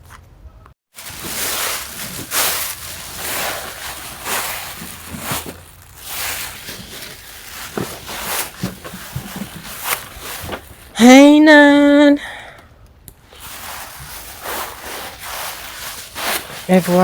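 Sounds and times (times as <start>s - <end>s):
footsteps through wet grass: 0.9s - 10.9s, 13.3s - 17.0s.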